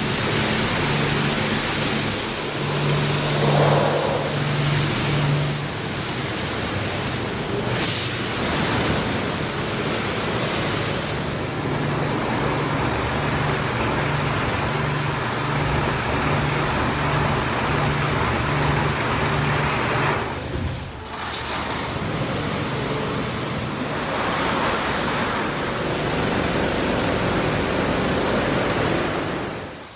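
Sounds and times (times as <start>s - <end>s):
pulsing low hum: 0.0s - 21.0s
car wash machinery: 0.0s - 29.9s
water spraying: 0.0s - 29.9s.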